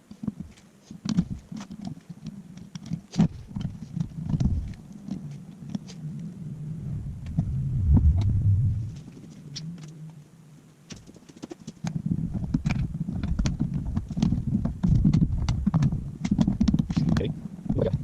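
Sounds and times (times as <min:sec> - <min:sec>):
low rumble: 0:06.1 - 0:09.2.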